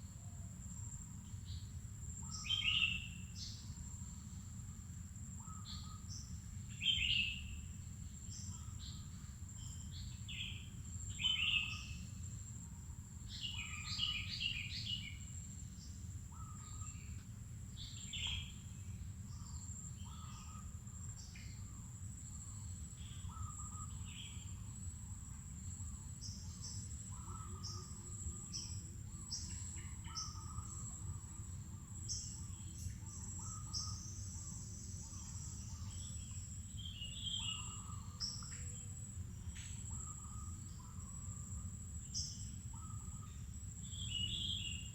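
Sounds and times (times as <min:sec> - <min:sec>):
wild birds chirping and calling: 0:22.5 - 0:24.8, 0:25.8 - 0:39.0.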